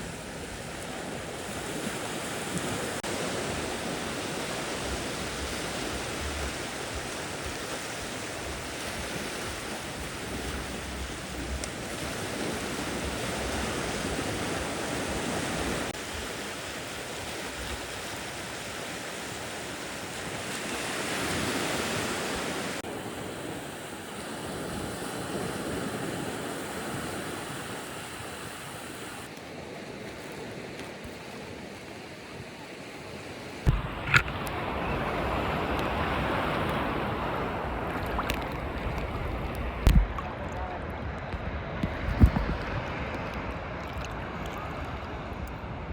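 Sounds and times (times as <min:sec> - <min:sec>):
wind buffeting microphone: 0:00.0 - 0:16.4, 0:33.6 - 0:45.9
sea waves washing onto beach: 0:00.0 - 0:45.9.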